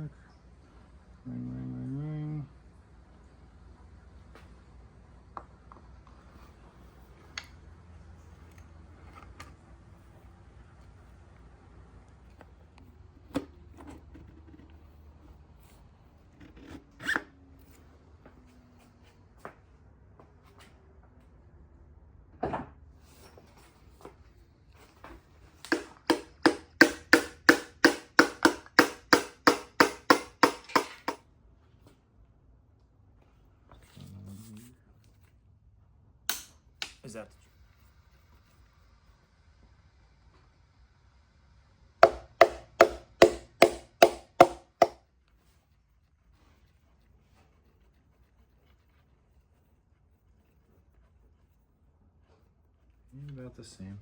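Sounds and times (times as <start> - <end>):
hand tool knocking on engine parts: 25.7 - 31.2, 42.0 - 45.0.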